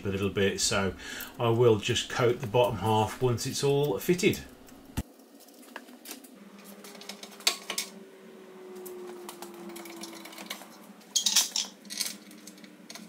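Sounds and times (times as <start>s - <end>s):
faint hum falling in pitch: 6.4s - 13.0s.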